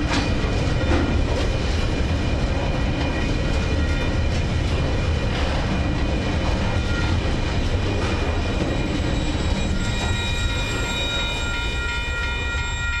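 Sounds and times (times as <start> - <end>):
freight train rumbling: 0.0 - 13.0
level crossing alarm ringing: 8.6 - 13.0.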